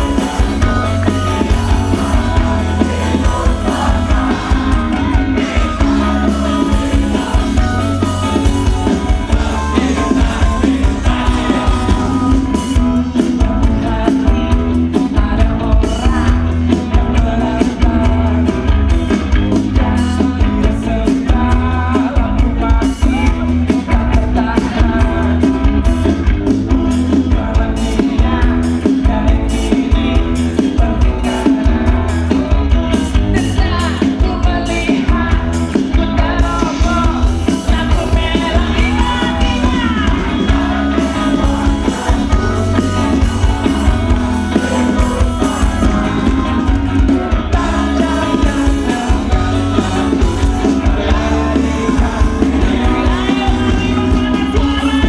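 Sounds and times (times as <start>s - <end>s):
cymbals keeping a beat: 0.0s - 55.0s
live rock band playing loud: 0.0s - 55.0s
person singing: 0.0s - 55.0s.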